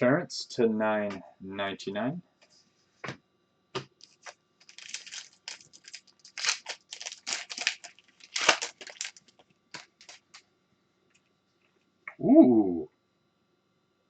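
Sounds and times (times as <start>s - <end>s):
foil wrappers and cards crinkling: 3.9s - 10.4s.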